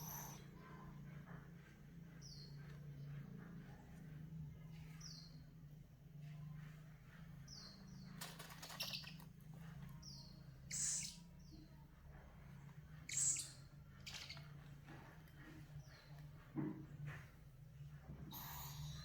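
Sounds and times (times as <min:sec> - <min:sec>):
owl chick chirping: 0:00.0 - 0:00.4, 0:10.6 - 0:11.3, 0:13.1 - 0:14.6, 0:18.3 - 0:19.0
owl chick hissing rasps: 0:18.3 - 0:19.0.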